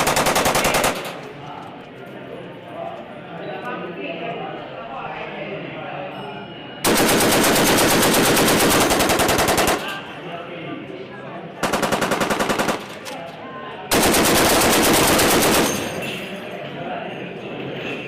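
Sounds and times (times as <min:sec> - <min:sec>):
machine gun automatic fire: 0:00.0 - 0:01.3, 0:06.9 - 0:10.0, 0:11.6 - 0:13.2, 0:13.9 - 0:16.1.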